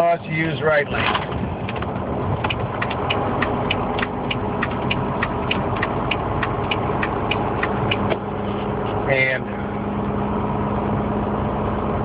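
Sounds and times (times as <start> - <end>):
diesel engine droning: 0.0 - 12.0
turn signal clicking: 1.6 - 9.0.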